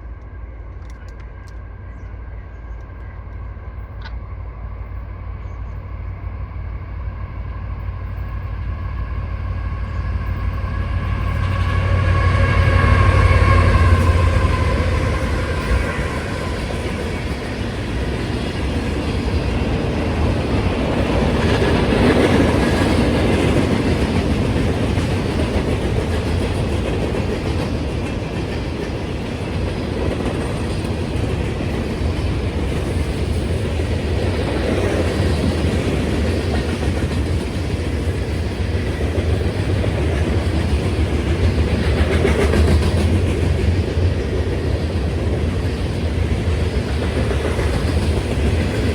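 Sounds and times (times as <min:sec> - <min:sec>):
train wheels clattering on rails: 0:07.8 - 0:48.9
locomotive horn: 0:10.7 - 0:16.6.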